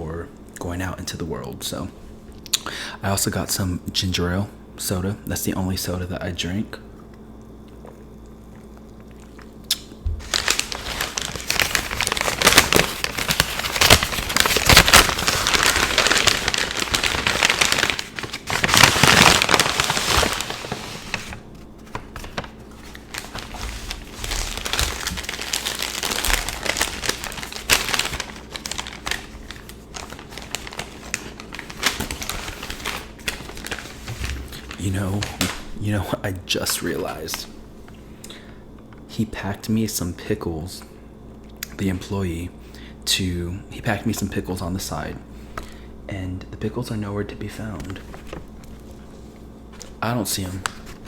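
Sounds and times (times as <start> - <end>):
food wrapping crinkling: 10.1 - 35.7, 47.9 - 51.0.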